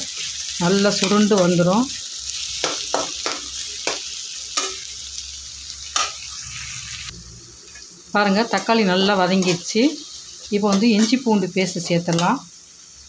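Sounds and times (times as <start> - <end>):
vegetables sizzling in oil: 0.0 - 13.0
spoon scraping and knocking pan: 1.0 - 1.5, 2.5 - 4.9, 7.7 - 11.3, 12.1 - 12.3.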